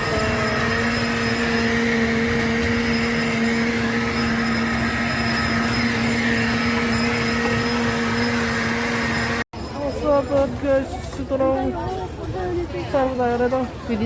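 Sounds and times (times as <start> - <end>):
machine drone hum: 0.0 - 9.4.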